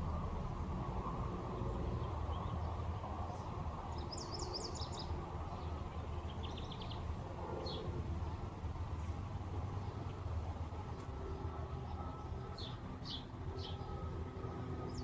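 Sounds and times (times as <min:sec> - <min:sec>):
small birds twittering: 0:04.0 - 0:05.1.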